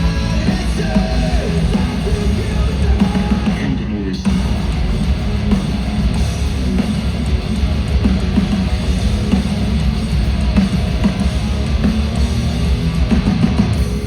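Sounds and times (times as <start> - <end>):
heavy rock band playing: 0.0 - 14.0.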